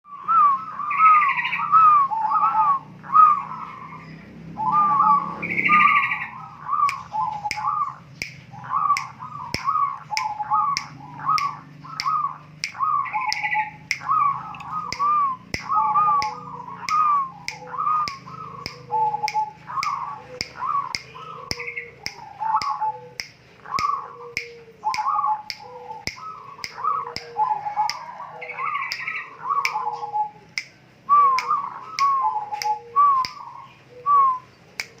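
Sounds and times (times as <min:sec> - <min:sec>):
bird harsh repeated calls: 0:00.0 - 0:35.0
steady sharp clicks: 0:06.9 - 0:28.1.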